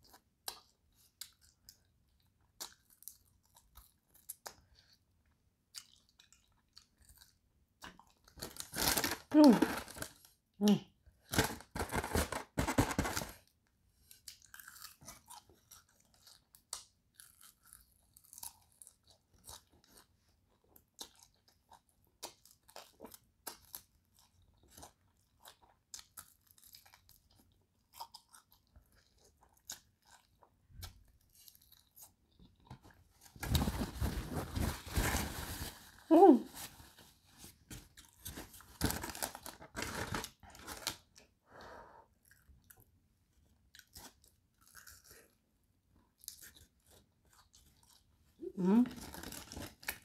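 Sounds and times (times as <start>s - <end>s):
crunching fried chicken: 14.1s - 20.1s
paper napkin rustling: 33.4s - 37.1s.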